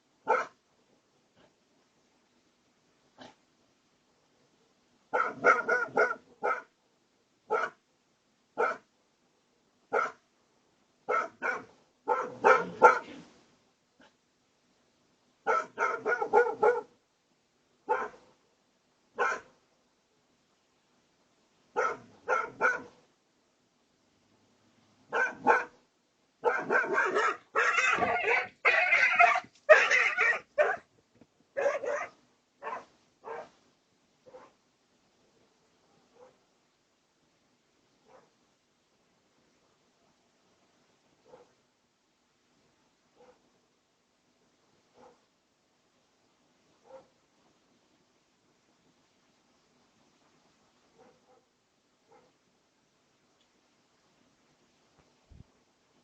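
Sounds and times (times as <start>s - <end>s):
dog barking: 0.2s - 0.6s, 5.1s - 6.7s, 7.5s - 7.8s, 8.6s - 8.9s, 9.9s - 10.2s, 11.1s - 13.2s, 15.4s - 17.0s, 17.9s - 18.3s, 19.2s - 19.6s, 21.7s - 23.0s, 25.1s - 25.8s, 26.4s - 30.9s, 31.6s - 33.6s, 34.2s - 34.6s, 35.9s - 36.4s, 38.0s - 38.4s, 41.2s - 41.6s, 43.1s - 43.5s, 44.9s - 45.3s, 46.8s - 47.2s, 50.9s - 51.5s, 52.1s - 52.4s.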